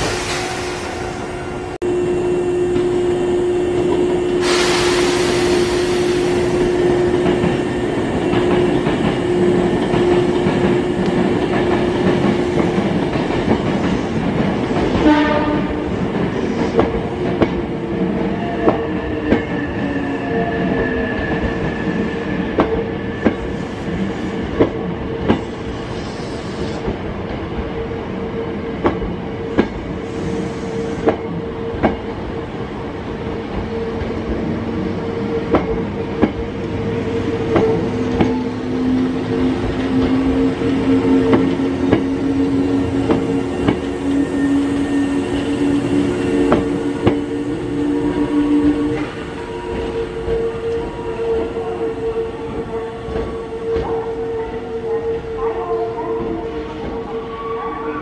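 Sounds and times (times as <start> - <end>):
train motor whine: 36.6 - 55.2.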